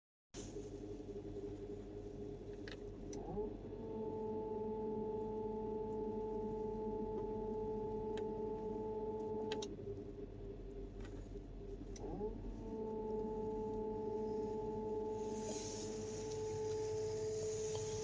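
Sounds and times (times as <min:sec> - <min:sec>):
car engine humming: 0:00.4 - 0:18.0
steady whine: 0:00.4 - 0:18.0
click: 0:02.6 - 0:03.3, 0:09.4 - 0:09.7, 0:11.9 - 0:12.1.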